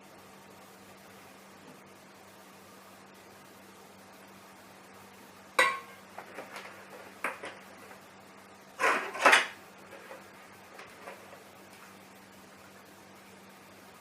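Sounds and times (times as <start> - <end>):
kitchenware clinking: 5.6 - 6.0.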